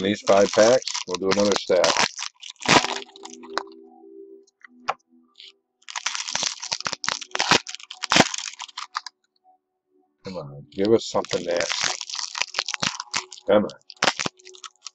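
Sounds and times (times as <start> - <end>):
foil wrappers tearing and crinkling: 0.0 - 3.6, 5.9 - 9.1, 11.1 - 14.9.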